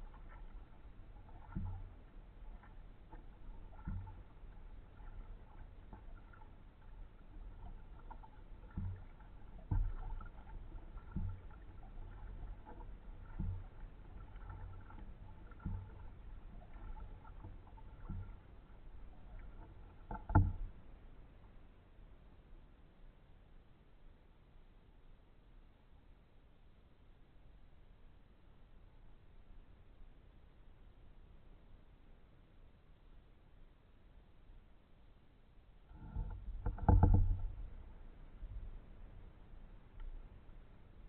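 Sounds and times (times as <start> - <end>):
kayak paddle strokes splashing: 0.0 - 21.6, 35.9 - 41.0.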